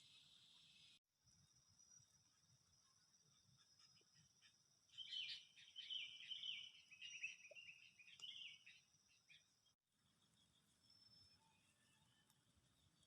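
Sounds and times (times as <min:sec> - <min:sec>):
bird twittering: 0:04.9 - 0:08.8.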